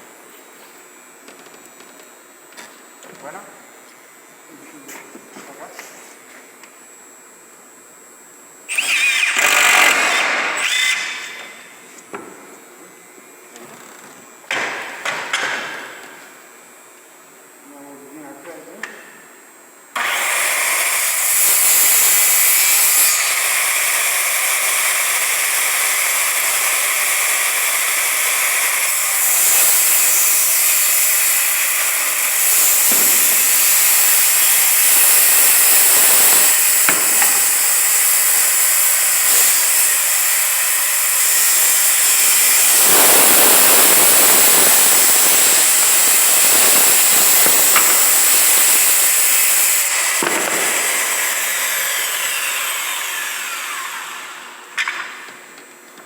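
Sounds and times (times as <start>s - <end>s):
circular saw cutting plywood: 8.7s - 11.8s, 20.0s - 55.3s.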